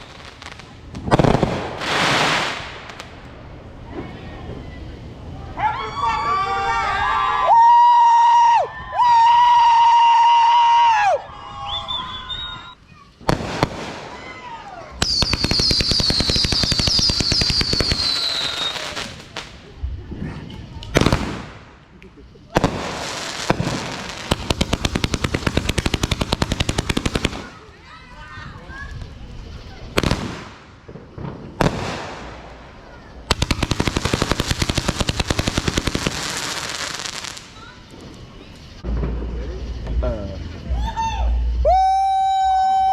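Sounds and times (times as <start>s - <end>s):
firework crackling pops: 0.0s - 4.3s, 11.7s - 40.7s
firework bangs: 0.0s - 5.0s, 11.6s - 41.7s
firework whistle: 5.8s - 19.3s, 40.6s - 42.9s.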